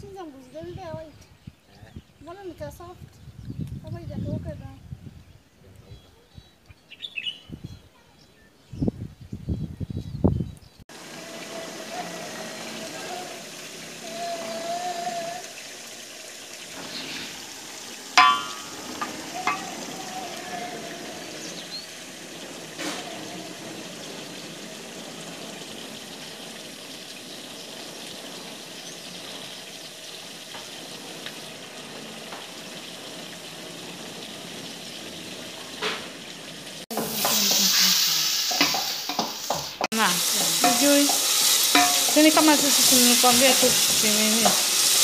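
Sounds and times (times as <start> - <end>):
meat sizzling in a pot: 10.9 - 45.0
clattering from stirring: 18.2 - 20.2, 38.5 - 39.9, 40.6 - 42.2.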